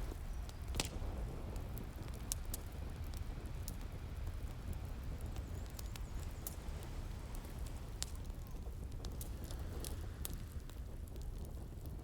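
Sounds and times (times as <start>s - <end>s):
wood fire crackling and popping: 0.5s - 1.0s.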